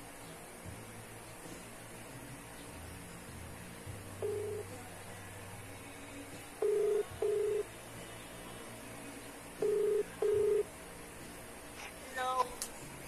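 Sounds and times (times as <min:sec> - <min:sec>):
telephone ringback tone: 0:04.2 - 0:04.7, 0:06.6 - 0:07.7, 0:09.6 - 0:10.6.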